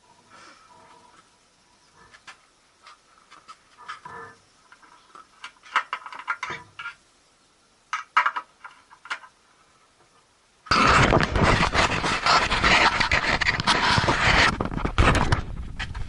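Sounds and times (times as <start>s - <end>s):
small hard objects clicking: 2.1s - 7.0s, 7.9s - 9.4s.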